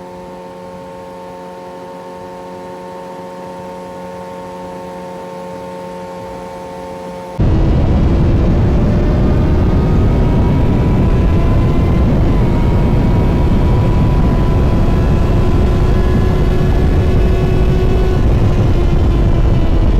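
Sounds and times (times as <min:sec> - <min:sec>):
wind rush on microphone: 0:07.4 - 0:19.9.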